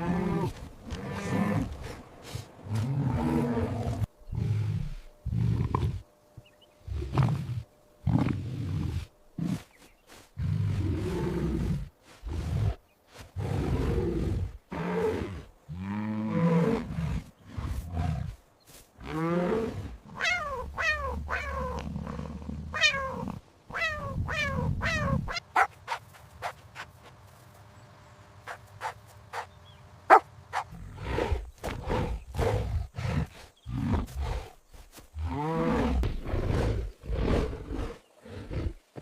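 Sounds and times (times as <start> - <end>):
big cat roaring and growling: 0.0 - 6.0, 13.4 - 18.4, 30.6 - 34.6, 35.2 - 39.0.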